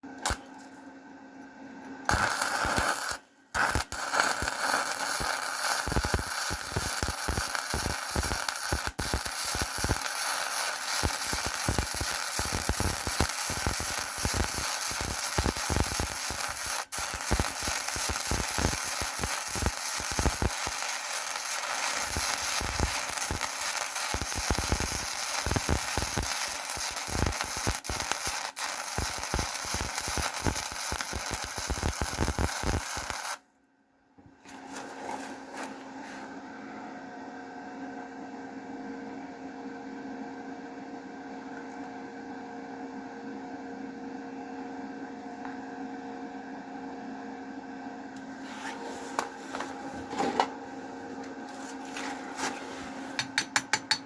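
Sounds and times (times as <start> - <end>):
welding arc crackling: 0.2 - 0.6, 2.1 - 33.4.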